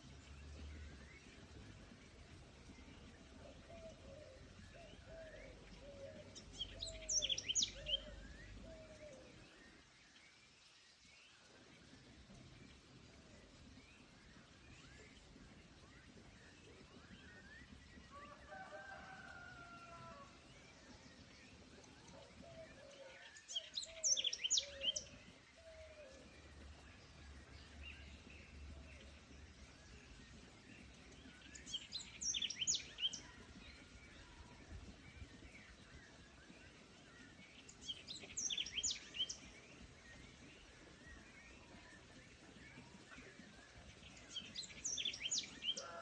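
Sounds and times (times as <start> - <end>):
forest background: 0.0 - 46.0
songbird high chirps: 4.9 - 9.0, 22.6 - 46.0.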